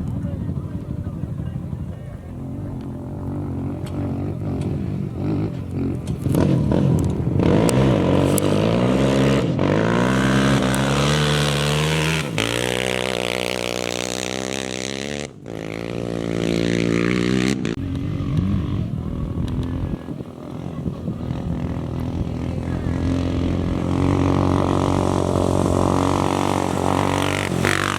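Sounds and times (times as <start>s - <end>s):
race engines revving: 0.0s - 27.9s.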